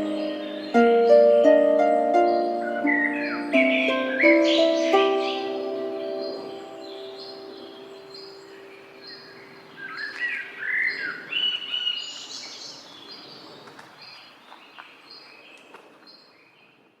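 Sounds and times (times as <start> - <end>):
piano note: 0.0 - 8.9
songbirds chirping and singing: 0.0 - 16.3.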